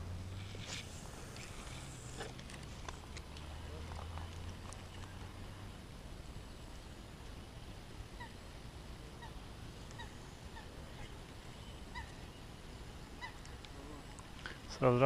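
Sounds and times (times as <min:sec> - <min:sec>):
outdoor background noise: 0:00.0 - 0:15.0
faint bird calls: 0:08.0 - 0:14.7.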